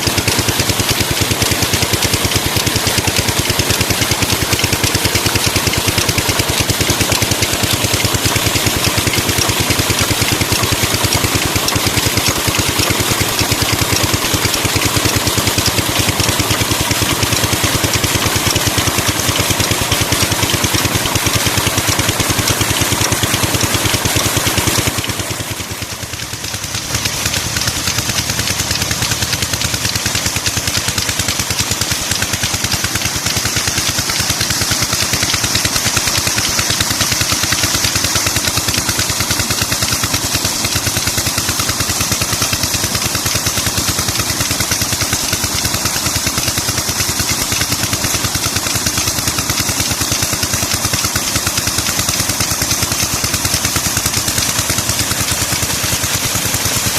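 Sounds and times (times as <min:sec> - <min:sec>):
diesel water pump engine running: 0:00.0 - 0:56.9.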